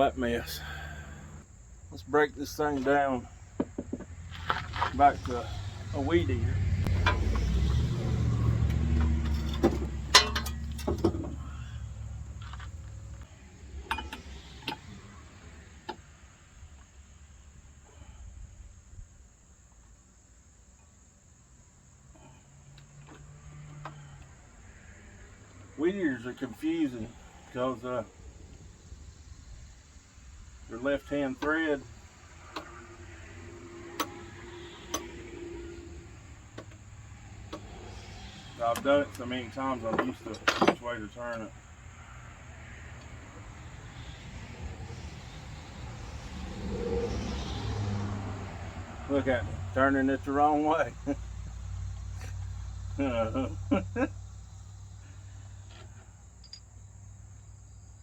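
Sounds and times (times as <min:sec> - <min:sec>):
metal clicks and clinks: 0:09.2 - 0:11.2, 0:13.8 - 0:14.8, 0:56.4 - 0:56.8.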